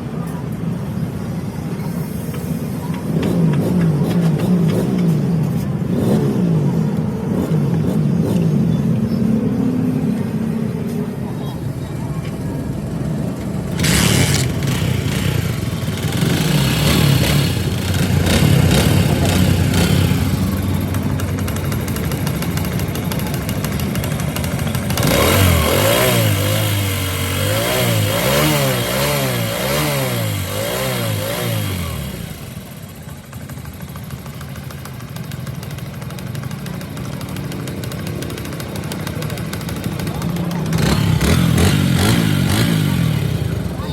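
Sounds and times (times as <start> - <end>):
vehicle engine revving: 2.9 - 10.9, 12.2 - 33.0, 37.6 - 43.9.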